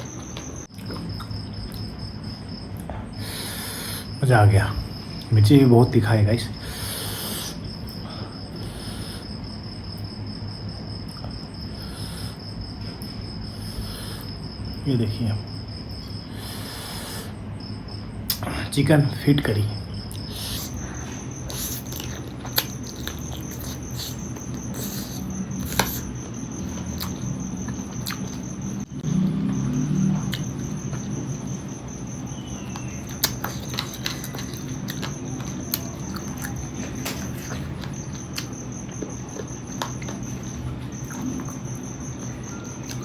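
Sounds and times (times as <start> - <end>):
cricket trill: 0.0 - 43.0
chewing and sucking: 20.1 - 28.9, 30.2 - 43.0.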